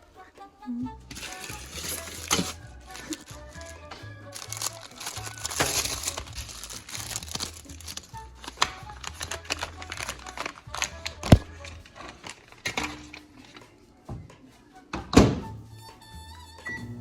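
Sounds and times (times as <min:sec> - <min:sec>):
clatter of handling: 0:01.1 - 0:13.7.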